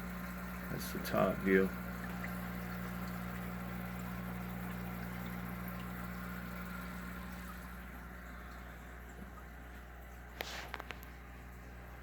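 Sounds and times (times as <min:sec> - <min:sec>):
aquarium filter pump humming: 0:00.0 - 0:12.0
moving water: 0:00.0 - 0:12.0.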